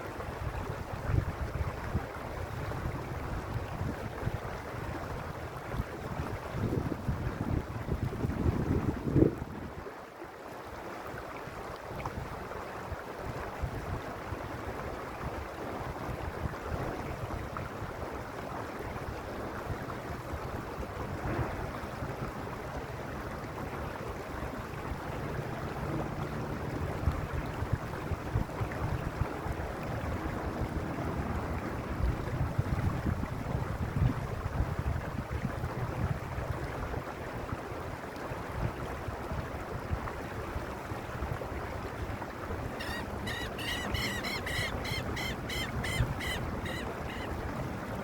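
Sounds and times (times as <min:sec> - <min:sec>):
mountain stream rushing: 0:41.0 - 0:48.0.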